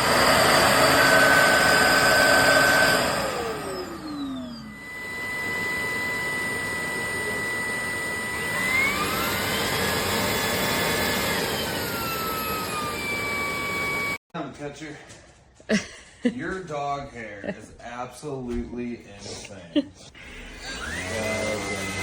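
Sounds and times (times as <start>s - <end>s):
vacuum motor whine: 0.0s - 14.2s, 20.2s - 22.0s.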